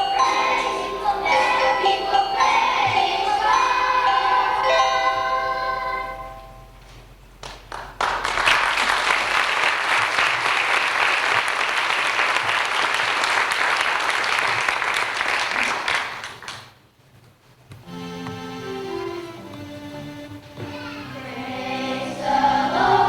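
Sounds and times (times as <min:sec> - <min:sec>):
people singing a praise chorus: 0:00.0 - 0:06.3, 0:21.2 - 0:23.0
audience applause: 0:07.4 - 0:16.8.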